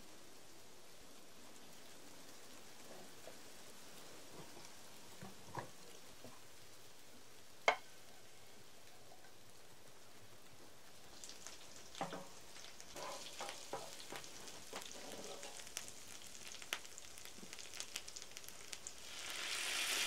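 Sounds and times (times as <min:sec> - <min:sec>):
food sizzling in a pan: 0:01.2 - 0:20.0
sharp crackles: 0:11.2 - 0:20.0.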